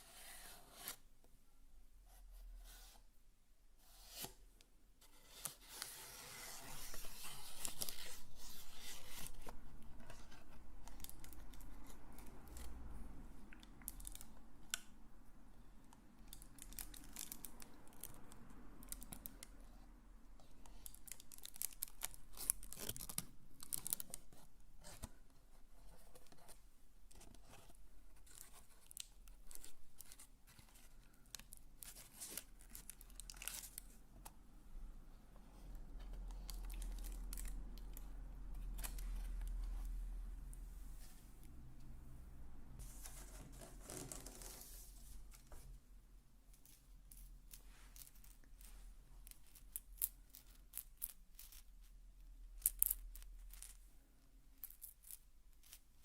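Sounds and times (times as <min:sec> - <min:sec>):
crinkly material rustling: 0:42.8 - 0:45.8.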